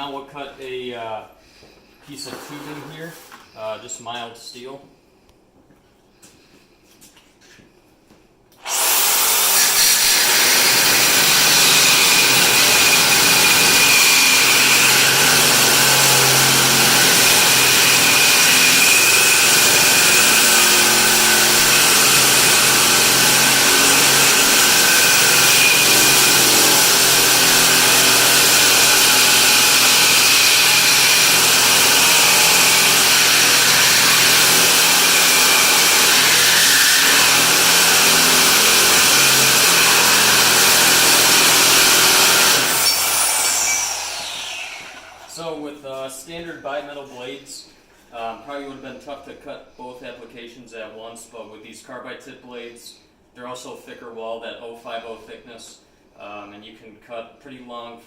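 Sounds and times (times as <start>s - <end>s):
reciprocating saw cutting steel: 8.6s - 45.4s.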